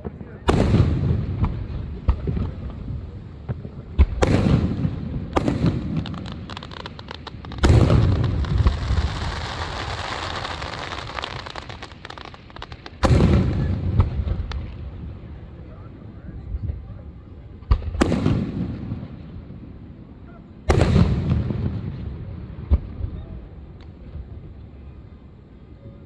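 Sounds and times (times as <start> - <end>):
firework booms with echo: 0.0 - 15.4, 17.7 - 19.4, 20.7 - 23.2
firework crackling shower: 0.5 - 15.4.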